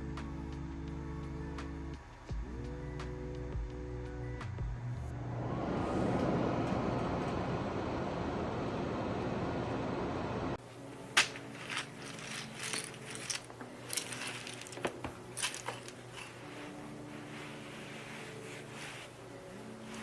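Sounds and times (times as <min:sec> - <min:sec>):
air purifier fan running: 0:05.3 - 0:20.0.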